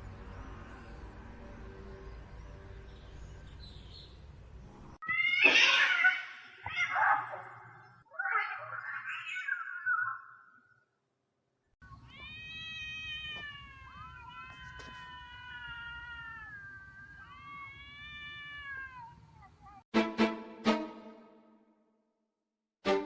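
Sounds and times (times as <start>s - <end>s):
cat meowing and yowling: 5.0s - 10.6s, 11.8s - 19.8s.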